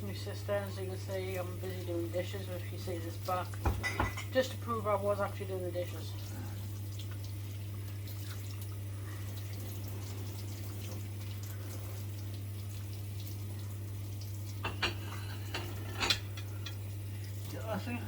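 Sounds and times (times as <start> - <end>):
tap water running into sink: 0.0 - 18.0
light dish clinks: 3.7 - 4.3.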